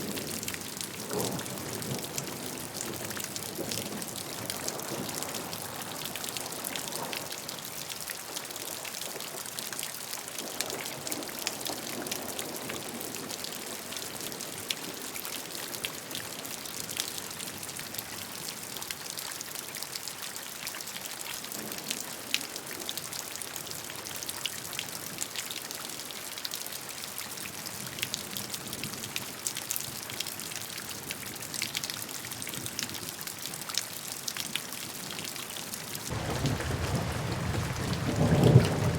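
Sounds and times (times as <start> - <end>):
raindrops ticking on a surface: 0.0 - 38.9
gentle rain hissing: 36.1 - 38.9.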